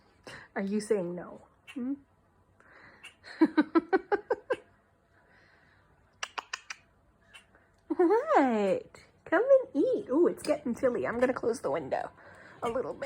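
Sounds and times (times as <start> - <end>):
cat chattering chirps: 6.2 - 7.5
sharp high clicks: 6.2 - 7.5.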